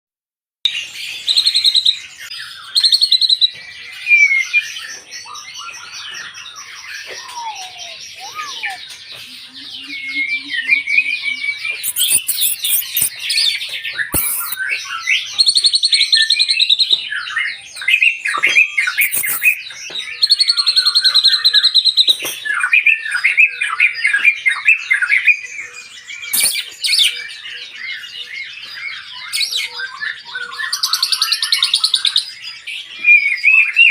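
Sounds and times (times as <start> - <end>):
bird singing whistles and trills: 1.1 - 33.9
sharp clicks: 11.8 - 13.1, 14.2 - 14.6, 19.0 - 19.6.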